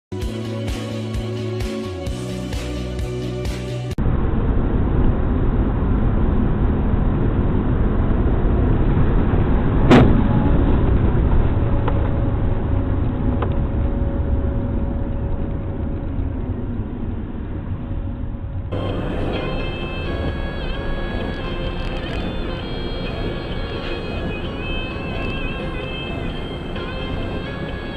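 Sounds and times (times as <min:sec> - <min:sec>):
car road and engine rumble: 0:00.2 - 0:27.9
impact bang: 0:09.8 - 0:11.3.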